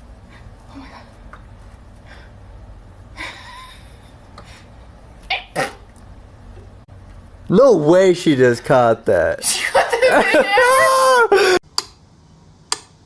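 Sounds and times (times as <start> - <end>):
animal sneezing: 5.3 - 5.9.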